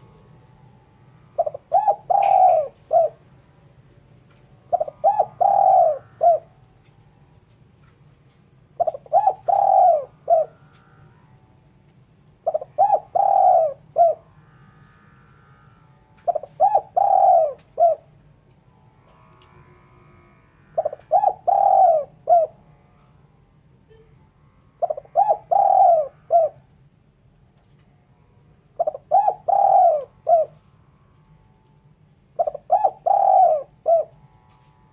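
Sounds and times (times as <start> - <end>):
dove cooing: 1.3 - 3.4, 4.3 - 7.0, 8.7 - 11.3, 12.4 - 18.2, 19.1 - 23.2, 24.8 - 26.7, 28.7 - 30.7, 32.4 - 34.7.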